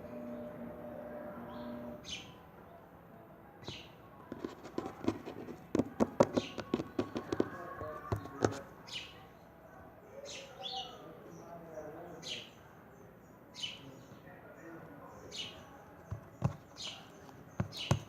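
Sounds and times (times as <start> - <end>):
bird chirping: 1.4 - 2.4, 14.9 - 18.0.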